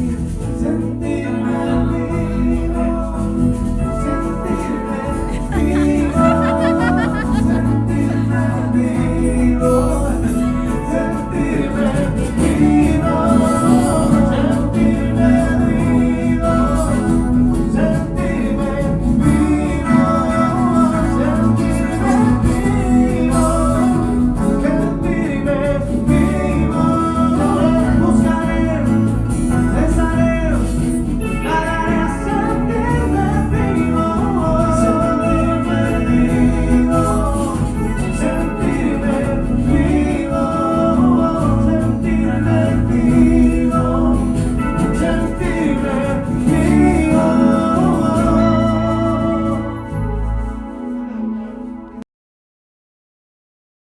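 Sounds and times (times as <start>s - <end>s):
band playing romantic song: 0.0s - 52.0s
pitch-bending lead melody: 3.6s - 24.9s.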